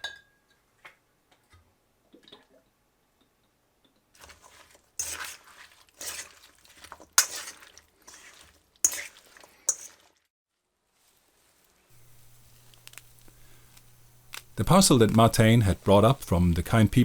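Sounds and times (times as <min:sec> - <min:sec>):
rustling handling noises: 0:04.2 - 0:10.2, 0:10.8 - 0:17.0.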